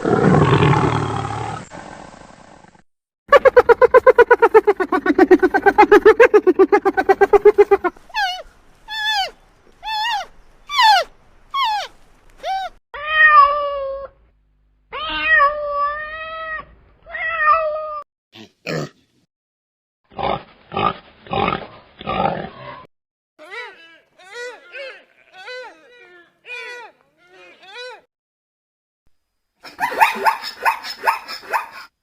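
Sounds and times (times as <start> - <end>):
animal call with fast pulsing: 3.3 - 8.4.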